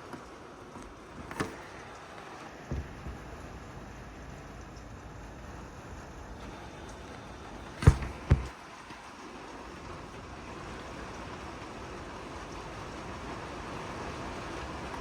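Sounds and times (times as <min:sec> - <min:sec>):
rain: 0:00.0 - 0:15.0
sharp thumps: 0:02.7 - 0:03.3, 0:07.8 - 0:08.5.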